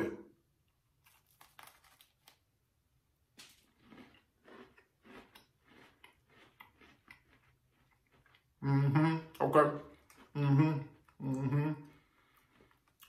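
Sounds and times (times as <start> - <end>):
quiet closed-mouth chewing: 3.7 - 13.0.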